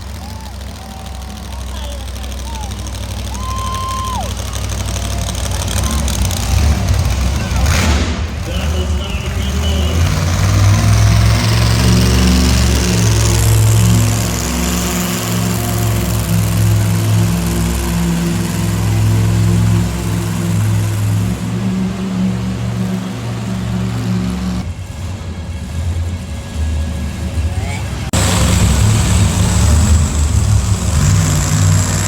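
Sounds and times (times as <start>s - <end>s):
truck engine droning: 0.0s - 32.0s.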